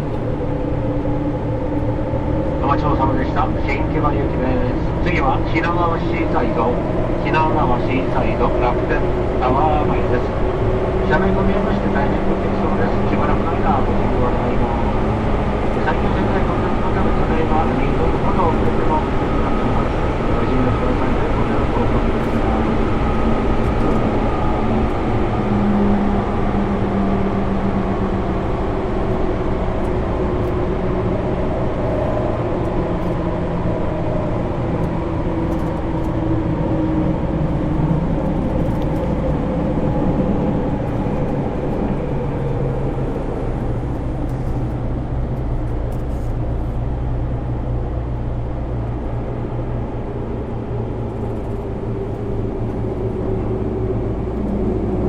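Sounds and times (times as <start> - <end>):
train motor and gear tones: 0.0 - 55.0
train wheels rumbling on rail: 0.0 - 55.0.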